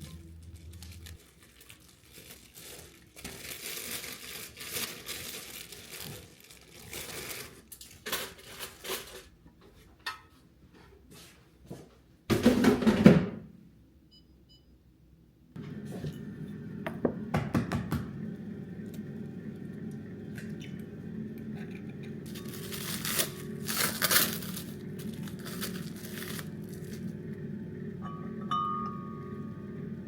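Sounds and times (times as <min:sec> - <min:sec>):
crinkling and rustling: 0:00.0 - 0:09.9, 0:21.8 - 0:27.2.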